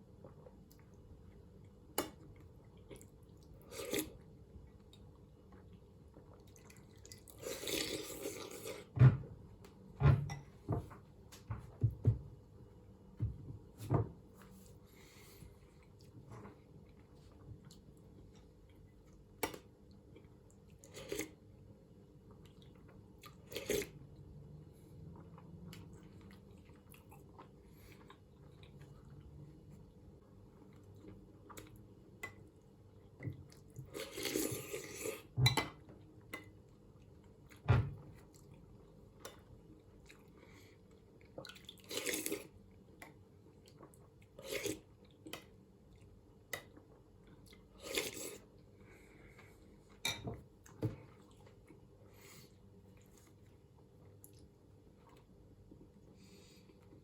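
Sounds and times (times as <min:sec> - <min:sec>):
person chewing: 0:06.3 - 0:08.9, 0:39.2 - 0:42.6, 0:43.6 - 0:48.5.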